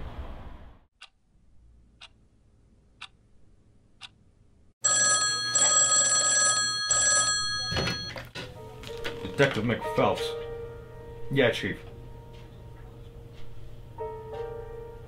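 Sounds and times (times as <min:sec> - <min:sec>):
telephone bell ringing: 0:04.8 - 0:08.3.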